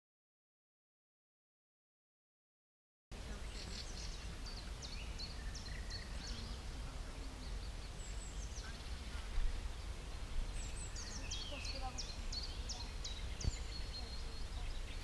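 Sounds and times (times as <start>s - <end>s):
songbirds chirping: 3.1s - 15.0s.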